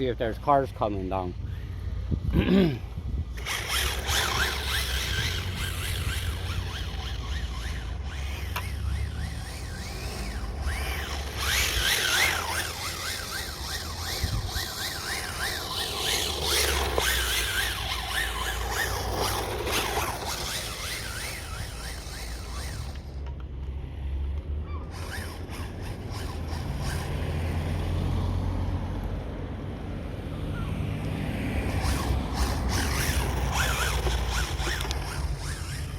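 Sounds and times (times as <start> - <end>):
wind rumble on microphone: 1.3 - 16.2
toy car motor whining: 3.3 - 23.3, 24.7 - 28.0, 30.3 - 35.9.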